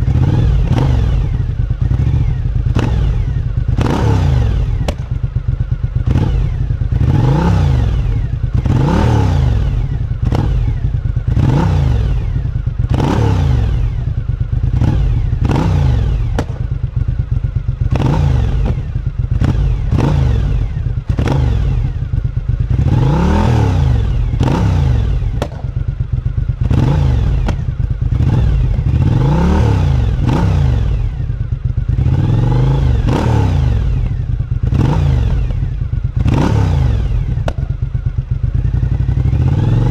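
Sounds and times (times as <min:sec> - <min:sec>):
motorcycle engine revving: 0:00.0 - 0:39.9
exhaust pops: 0:04.8 - 0:05.3, 0:16.3 - 0:16.9, 0:25.3 - 0:25.9, 0:27.4 - 0:27.9, 0:37.4 - 0:38.0.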